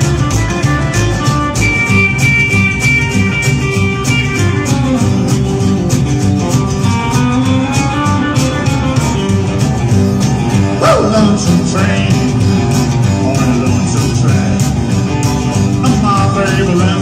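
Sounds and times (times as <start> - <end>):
guitar: 0.0 - 17.0
live band playing rockabilly: 0.0 - 17.0.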